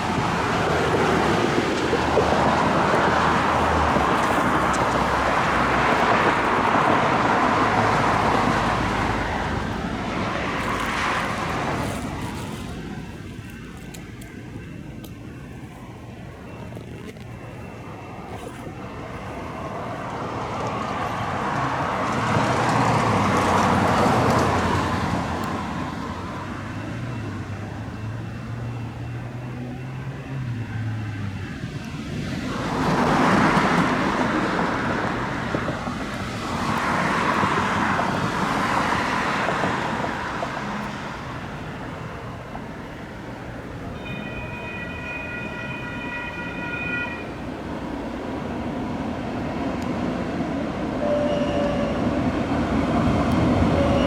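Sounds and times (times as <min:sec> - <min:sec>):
train wheel and running noise: 0:00.0 - 0:54.0
train horn blast: 0:43.9 - 0:47.5, 0:51.0 - 0:52.3, 0:53.4 - 0:54.0.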